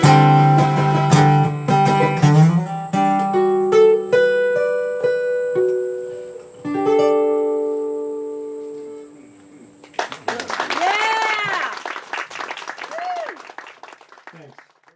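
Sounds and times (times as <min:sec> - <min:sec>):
guitar plucked notes and chord: 0:00.0 - 0:09.5.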